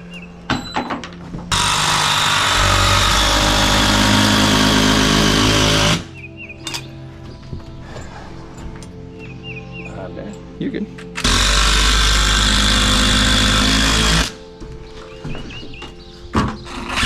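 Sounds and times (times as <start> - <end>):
power tool running: 1.5 - 6.1, 11.2 - 14.4, 16.7 - 17.0.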